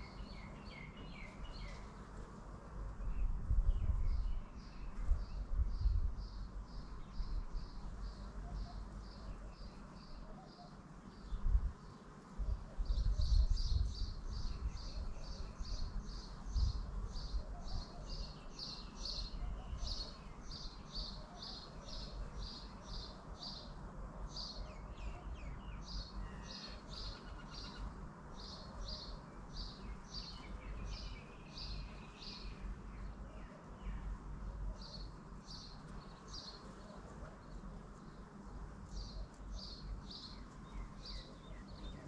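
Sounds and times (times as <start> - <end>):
bird chirping: 0.0 - 1.9, 24.4 - 34.1, 38.9 - 42.0
wind rumbling on microphone: 2.9 - 7.8, 11.3 - 11.8, 12.4 - 18.3.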